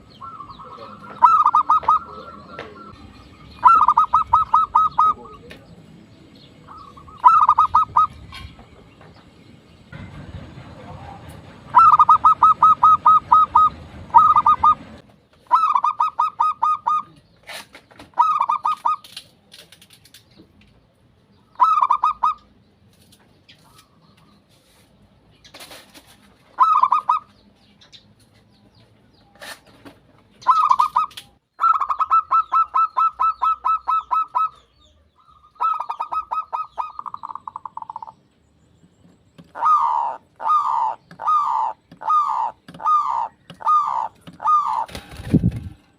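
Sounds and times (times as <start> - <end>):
doves cooing: 0.0 - 5.8, 6.6 - 8.8, 10.0 - 19.2, 21.5 - 22.5, 26.5 - 27.3, 29.4 - 38.2, 39.4 - 45.9.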